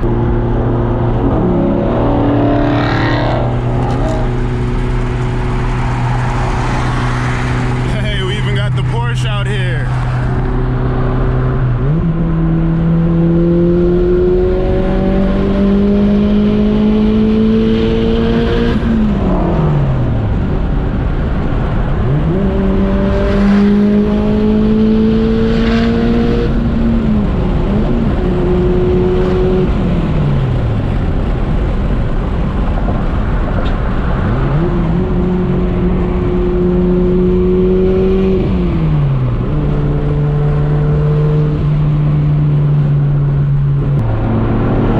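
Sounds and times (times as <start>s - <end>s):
car engine revving under load: 0.0s - 32.6s, 33.2s - 44.9s.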